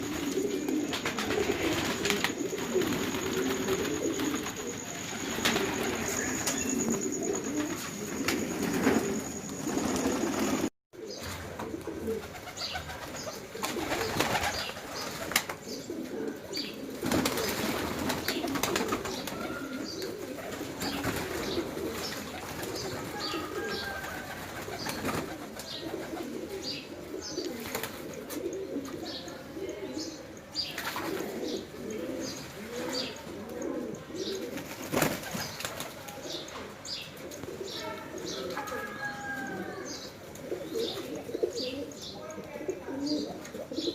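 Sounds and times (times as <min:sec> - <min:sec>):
small birds chirping: 0:00.0 - 0:11.4, 0:12.2 - 0:43.9
wings fluttering: 0:00.0 - 0:15.6, 0:16.9 - 0:26.3, 0:34.5 - 0:36.3
pigeons cooing: 0:00.0 - 0:43.9.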